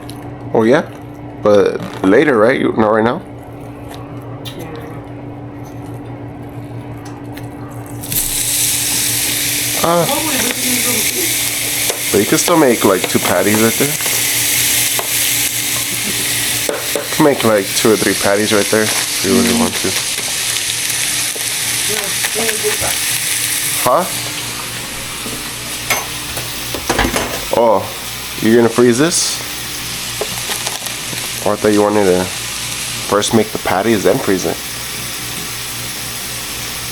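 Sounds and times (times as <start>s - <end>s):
steady low hum: 0.0s - 36.9s
meat sizzling in a hot pan: 8.0s - 36.9s.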